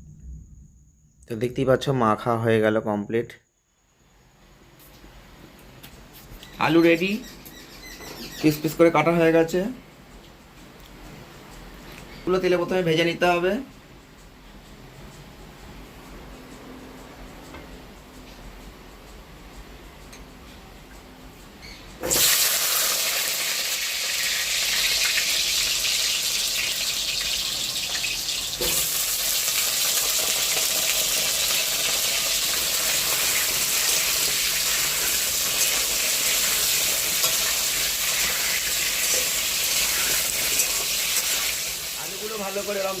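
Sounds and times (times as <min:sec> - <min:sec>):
potatoes sizzling in hot oil: 0:22.0 - 0:43.0.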